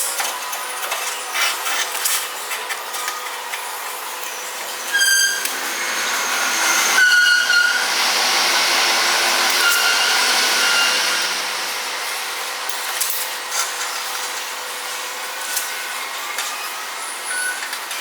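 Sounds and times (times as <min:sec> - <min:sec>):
angle grinder cutting metal: 0:04.4 - 0:12.4.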